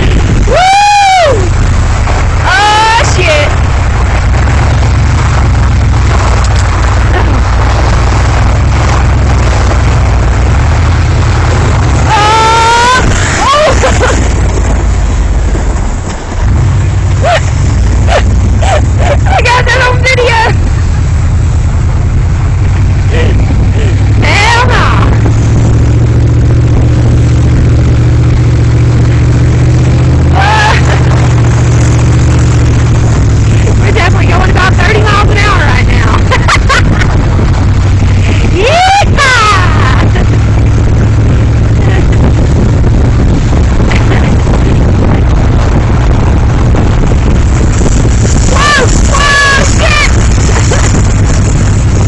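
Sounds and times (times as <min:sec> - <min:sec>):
vehicle road noise: 0:00.0 - 0:52.0
wind buffeting microphone: 0:00.0 - 0:52.0
person shouting: 0:00.4 - 0:01.5, 0:02.4 - 0:03.5, 0:12.0 - 0:14.2, 0:30.3 - 0:31.0, 0:38.4 - 0:40.1, 0:48.5 - 0:50.2
short high-pitched whoop: 0:00.4 - 0:01.5.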